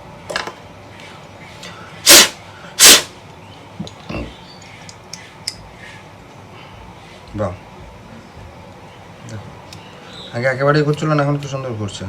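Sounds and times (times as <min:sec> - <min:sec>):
short rushes of air: 0:02.0 - 0:03.2.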